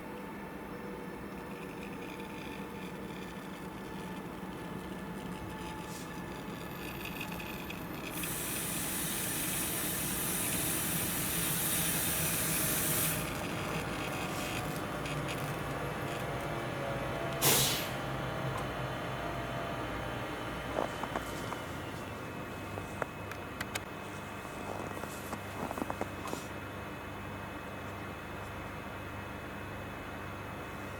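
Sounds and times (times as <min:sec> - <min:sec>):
low engine hum: 0:01.3 - 0:30.9
air brake hissing: 0:08.2 - 0:13.3, 0:17.4 - 0:18.1
sharp blast of air: 0:17.4 - 0:18.0.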